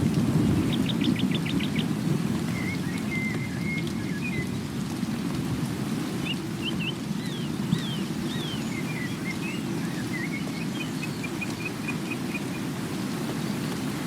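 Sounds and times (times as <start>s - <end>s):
water rushing: 0.0s - 14.0s
songbird whistling: 2.5s - 4.4s, 6.3s - 12.7s.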